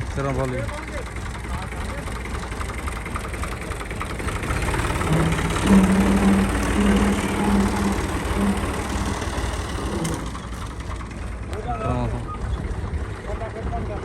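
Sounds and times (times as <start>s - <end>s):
tractor engine rumbling: 0.0s - 14.0s
droning tone: 4.5s - 10.9s.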